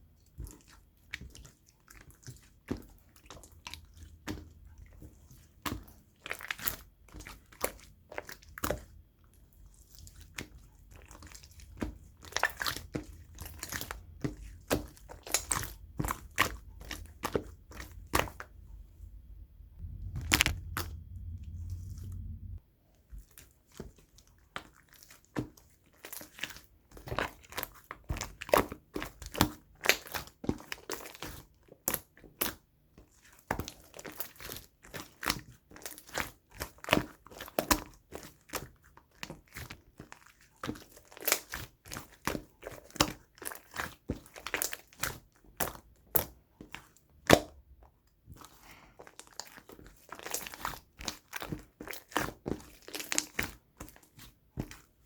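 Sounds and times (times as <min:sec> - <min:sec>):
slime squishing with crackling pops: 0:10.2 - 0:18.5, 0:19.8 - 0:22.6, 0:33.4 - 0:55.0.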